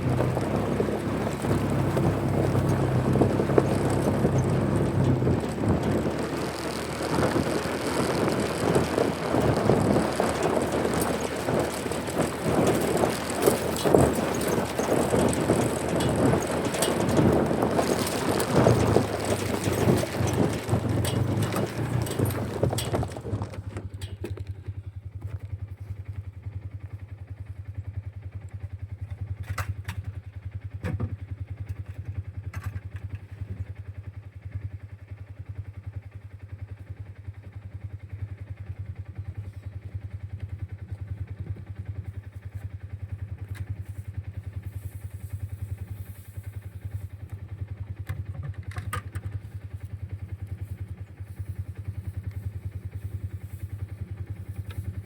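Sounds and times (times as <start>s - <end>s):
engine humming: 0.0s - 33.8s, 39.0s - 55.0s
clattering knocks: 0.2s - 24.2s.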